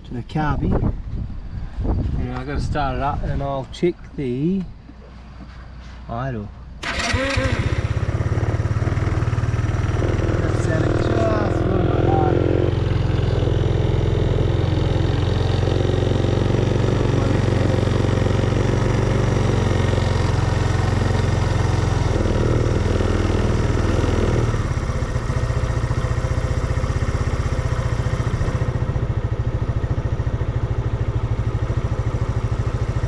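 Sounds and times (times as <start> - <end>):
motorcycle engine idling: 6.7 - 33.0.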